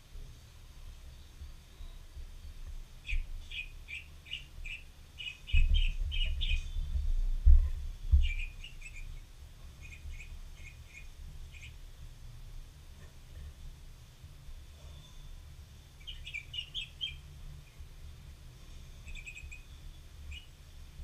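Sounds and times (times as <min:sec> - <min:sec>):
small bird chirping: 0:01.0 - 0:11.8, 0:14.8 - 0:17.9, 0:18.8 - 0:20.6
low thumps and rumble: 0:05.5 - 0:09.0.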